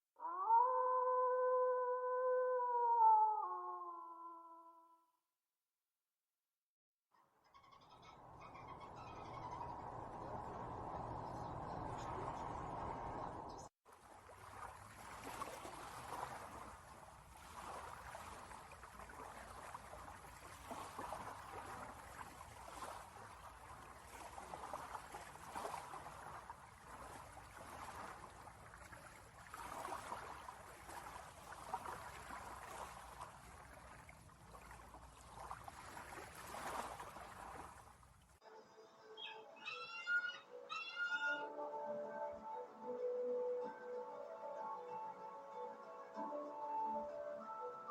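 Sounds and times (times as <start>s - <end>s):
water rushing: 9.3s - 38.4s.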